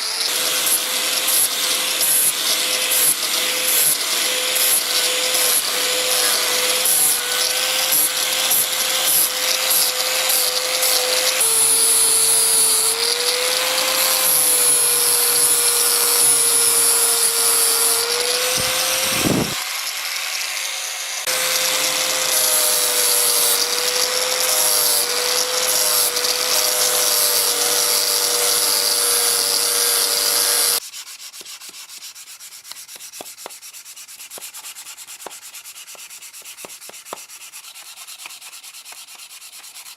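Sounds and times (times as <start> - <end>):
angle grinder grinding metal: 0.0 - 30.8
quiet hand sanding: 30.8 - 39.9.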